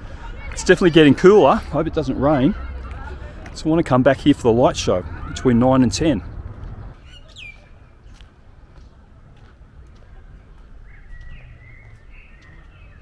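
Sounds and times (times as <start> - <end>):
low outdoor rumble: 1.6 - 7.0.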